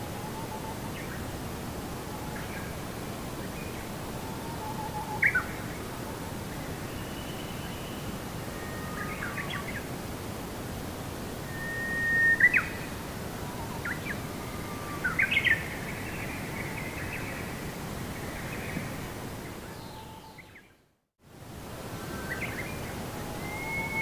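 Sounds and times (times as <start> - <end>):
outdoor background hiss: 0.0 - 24.0
birds chirping and whistling: 23.4 - 24.0.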